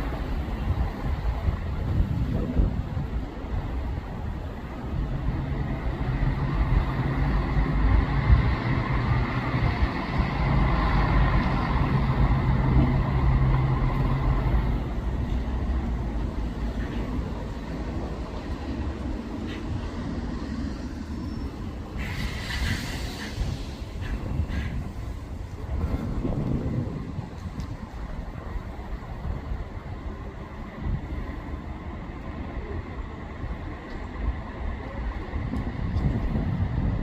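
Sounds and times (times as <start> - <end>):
bus engine running: 0.0 - 37.0
brief hiss: 22.0 - 24.8.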